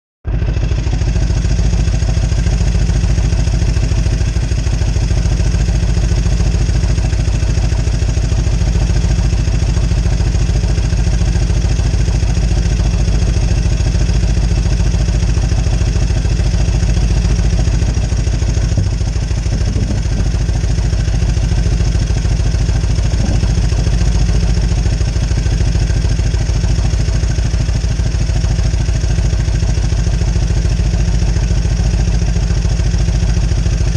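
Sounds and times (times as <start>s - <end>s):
motorcycle engine running: 0.3s - 33.9s.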